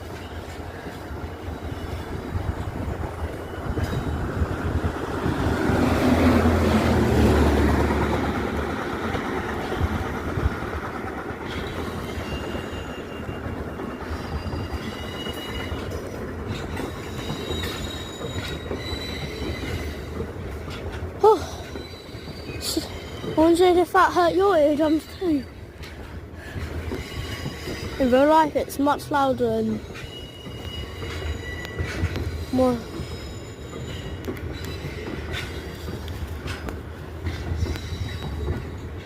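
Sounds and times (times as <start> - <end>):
locomotive engine hum: 0.0 - 39.0
wheels clicking over rail joints: 0.0 - 39.0
high-pitched wheel squeal: 11.6 - 16.0, 16.7 - 20.1, 29.8 - 35.9.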